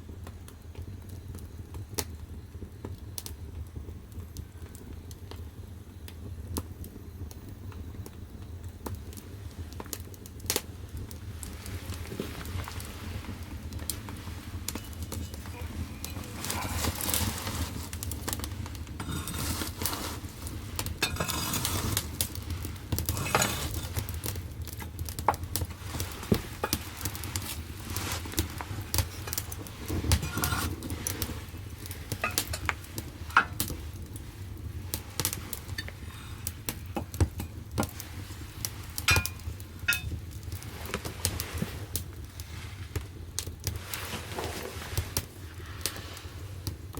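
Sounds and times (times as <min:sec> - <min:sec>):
firewood crackling and popping: 0:00.0 - 0:46.9
low rumble of fire: 0:00.0 - 0:46.9.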